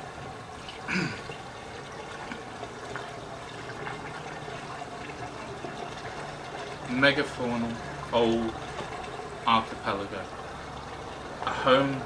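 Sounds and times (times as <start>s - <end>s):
splashing pool water: 0.0s - 12.0s.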